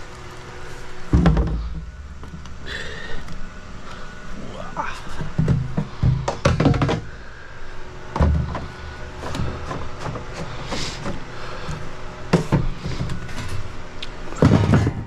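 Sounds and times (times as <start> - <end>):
low mechanical hum: 0.0 - 15.0
heavy thump and low rumble: 1.1 - 2.5
irregular knocks and clanks: 1.1 - 2.6, 5.1 - 7.2, 8.1 - 11.2, 14.4 - 15.0.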